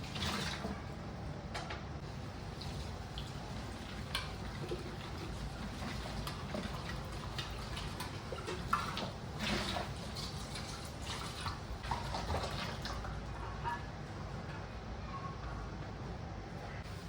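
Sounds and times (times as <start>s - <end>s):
water trickling and dripping: 2.0s - 13.4s.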